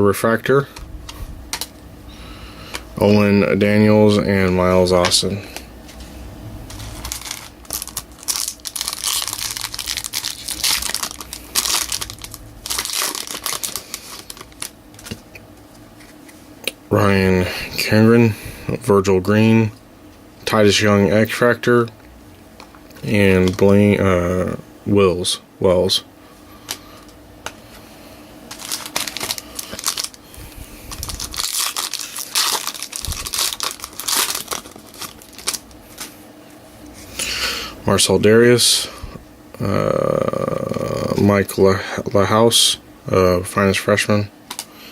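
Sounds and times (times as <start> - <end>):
foil wrapper crinkling and tearing: 6.7 - 15.4, 22.9 - 24.0, 28.4 - 36.2.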